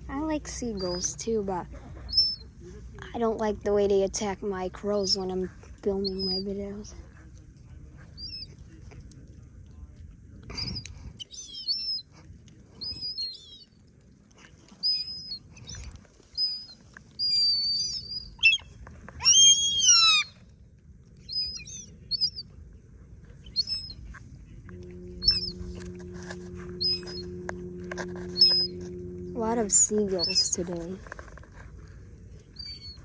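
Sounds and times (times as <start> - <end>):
low steady hum: 0.0 - 33.0
sparrows chirping: 0.2 - 2.5, 4.6 - 6.8, 11.2 - 12.0, 21.3 - 22.4, 25.1 - 27.4, 28.2 - 31.0.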